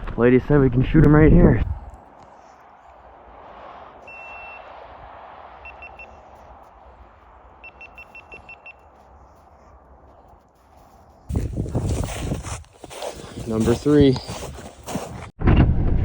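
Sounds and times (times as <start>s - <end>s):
electronic beeps: 7.6s - 8.8s.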